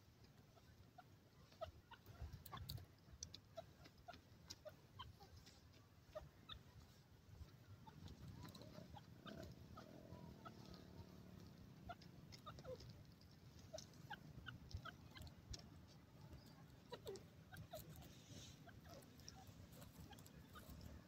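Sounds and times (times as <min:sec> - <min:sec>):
bird chirps: 0:07.8 - 0:21.0.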